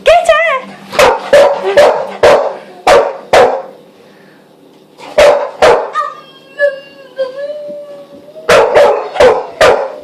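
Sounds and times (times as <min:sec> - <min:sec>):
dog barking sharply: 0:01.0 - 0:03.7, 0:05.1 - 0:06.1, 0:08.5 - 0:09.9.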